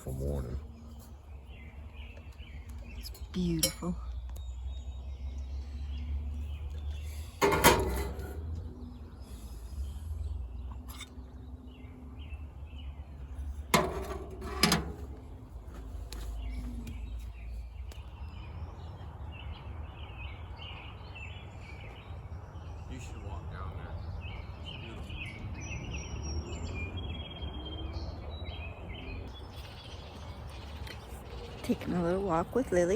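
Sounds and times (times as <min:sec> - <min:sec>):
birds chirping: 0:00.0 - 0:32.9.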